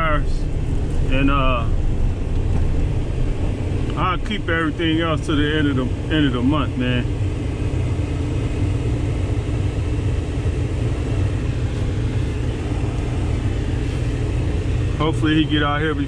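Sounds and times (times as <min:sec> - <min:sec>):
faint constant hum: 0:00.0 - 0:16.0
truck engine rumbling: 0:00.0 - 0:16.0.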